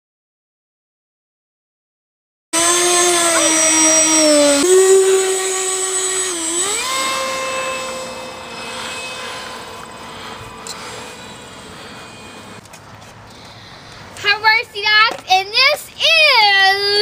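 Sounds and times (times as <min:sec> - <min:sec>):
model airplane motor whine: 0:02.6 - 0:12.6.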